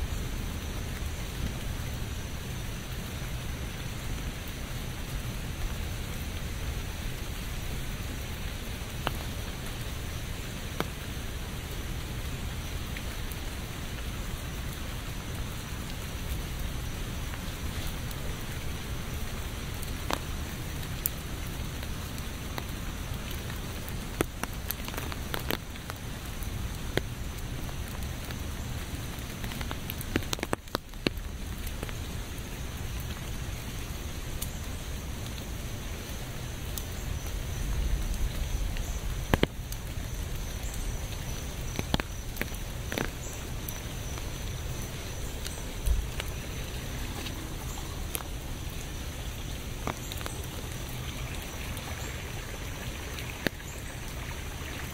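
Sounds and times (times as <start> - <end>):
raindrops striking close by: 0.0 - 54.9
steady rain falling: 0.0 - 54.9.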